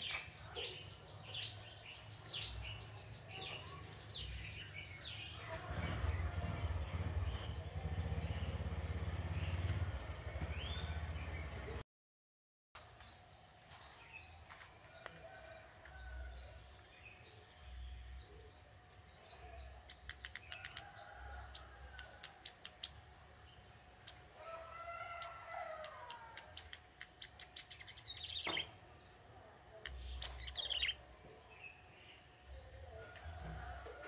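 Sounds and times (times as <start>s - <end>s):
bird singing ticking chips and trills: 19.7s - 23.2s, 25.2s - 28.8s, 29.8s - 31.0s.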